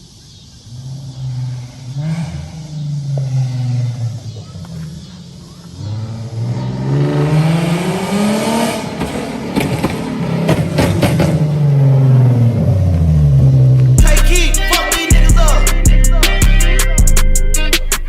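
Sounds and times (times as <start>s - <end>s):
car engine revving: 0.6s - 18.0s
exhaust pops: 7.5s - 15.6s.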